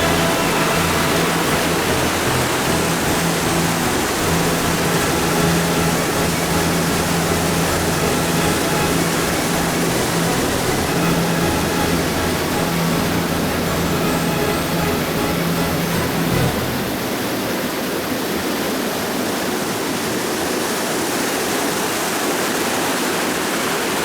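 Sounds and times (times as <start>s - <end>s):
low hum: 0.0s - 17.4s
water rushing over rocks: 0.0s - 24.0s.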